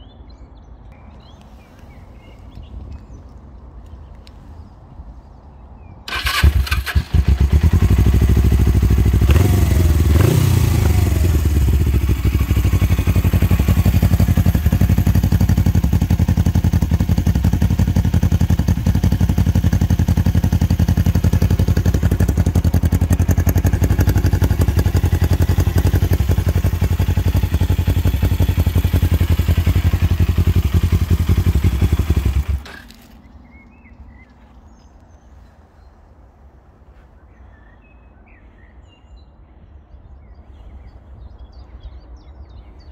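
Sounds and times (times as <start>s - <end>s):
motorcycle engine idling: 6.1s - 33.1s.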